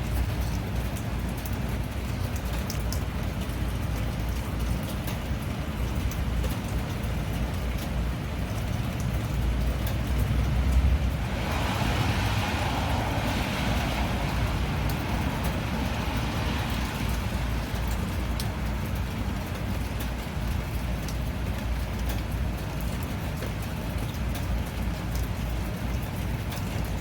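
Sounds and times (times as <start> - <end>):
raindrops ticking: 0.0 - 27.0
tyres hissing on wet road: 8.1 - 21.8
steady low rumble: 8.2 - 19.6.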